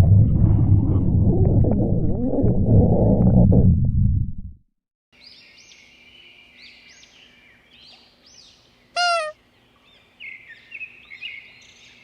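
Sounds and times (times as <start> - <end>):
birds chirping: 6.2 - 12.0
loud rising bird call: 9.0 - 9.4.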